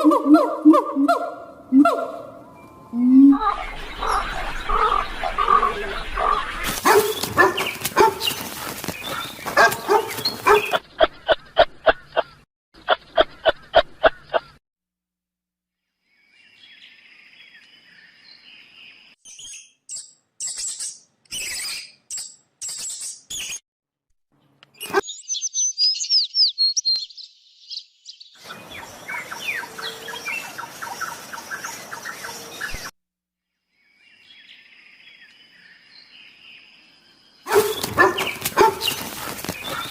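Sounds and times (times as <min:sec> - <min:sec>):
bird chirps and twittering: 0:02.4 - 0:14.6, 0:16.2 - 0:23.6, 0:24.4 - 0:32.9, 0:33.8 - 0:39.9
rapid repeated animal calls: 0:04.8 - 0:10.8, 0:37.5 - 0:39.9.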